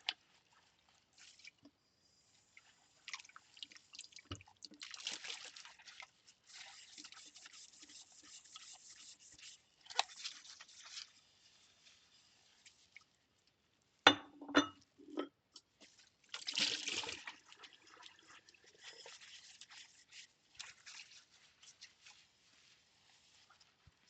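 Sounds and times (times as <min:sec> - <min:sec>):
water dripping and trickling: 0:02.5 - 0:11.1, 0:15.5 - 0:24.0
ceramic bowls clinking: 0:14.1 - 0:15.3.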